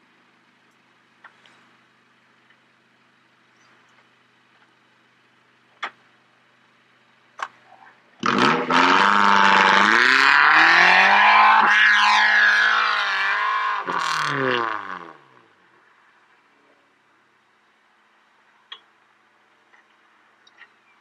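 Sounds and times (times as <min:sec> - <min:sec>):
car engine revving hard: 0:08.2 - 0:15.4
faint hum: 0:15.2 - 0:21.0.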